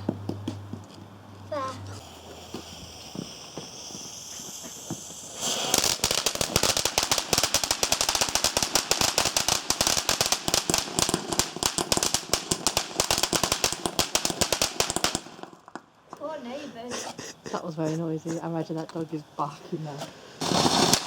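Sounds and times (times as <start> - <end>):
firework fuse hiss: 1.5 - 15.7, 20.0 - 21.0
firework crackling bangs: 1.5 - 15.9, 20.4 - 21.0.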